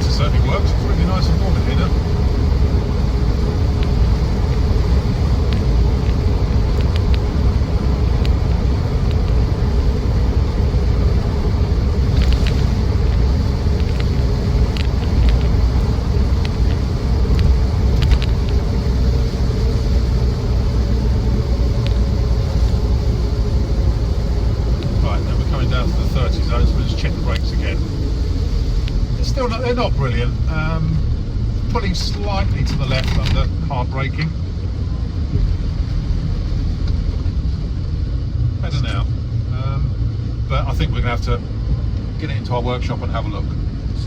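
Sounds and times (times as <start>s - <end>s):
diesel engine and road rumble: 0.0s - 44.0s
light clicks and rattles: 12.1s - 18.6s, 31.7s - 34.4s.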